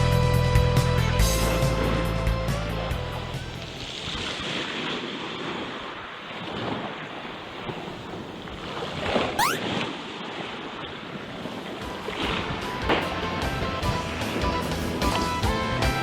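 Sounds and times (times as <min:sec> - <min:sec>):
fast-rising whistle: 0:09.4 - 0:09.6.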